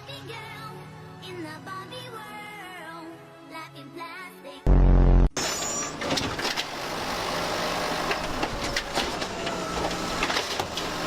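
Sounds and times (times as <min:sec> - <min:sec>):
garbage truck engine running: 0:04.7 - 0:11.0.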